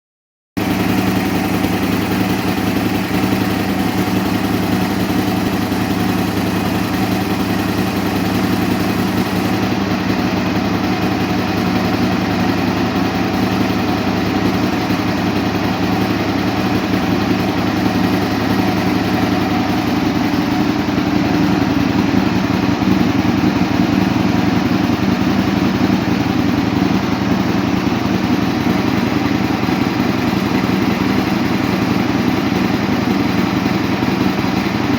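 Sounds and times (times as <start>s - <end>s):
motorcycle engine idling: 0.6s - 34.9s.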